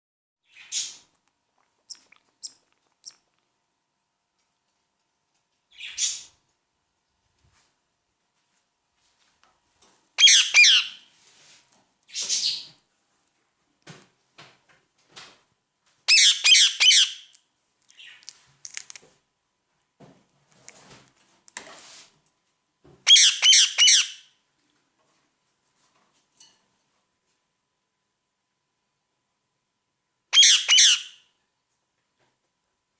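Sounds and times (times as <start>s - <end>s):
parrot squawking: 10.2s - 11.0s, 16.1s - 17.3s, 23.1s - 24.2s, 30.4s - 31.2s.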